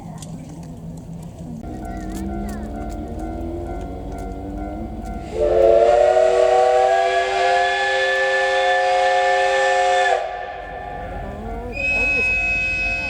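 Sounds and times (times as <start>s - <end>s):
steam locomotive whistle: 5.2s - 11.0s, 11.7s - 13.0s
steam hissing: 5.2s - 13.0s.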